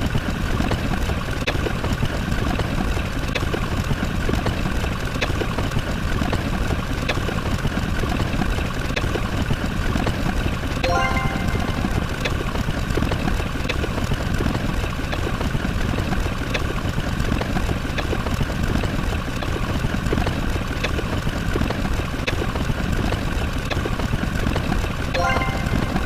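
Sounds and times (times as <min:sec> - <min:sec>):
steady higher tones: 0:10.8 - 0:12.3.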